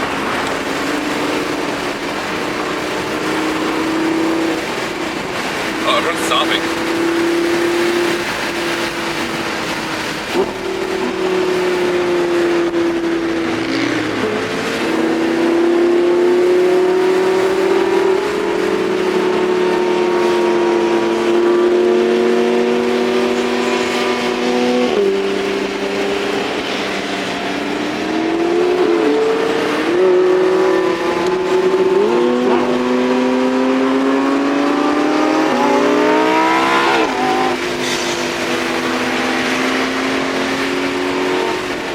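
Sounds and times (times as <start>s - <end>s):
car engine revving: 0.0s - 41.9s.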